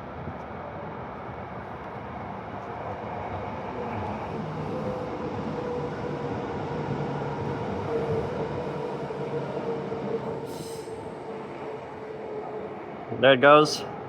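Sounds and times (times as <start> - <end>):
electric train rumbling: 0.0 - 14.0
train wheel squeal: 3.8 - 12.9.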